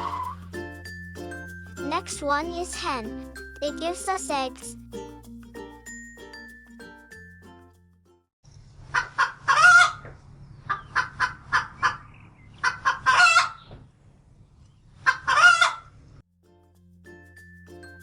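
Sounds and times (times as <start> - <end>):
hen cackling: 0.0 - 0.4, 9.0 - 10.1, 12.6 - 13.6, 15.1 - 15.9.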